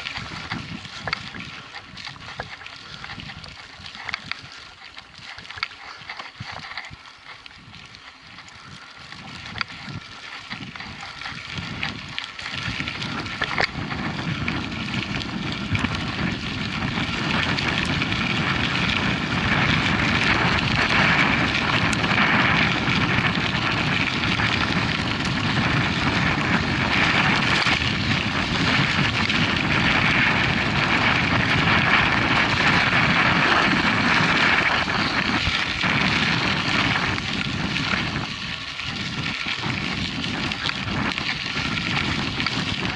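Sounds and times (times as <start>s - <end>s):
bike clicks: 0.0s - 42.9s
tyres on gravel: 0.0s - 42.9s
wind rushing over microphone: 0.0s - 42.9s.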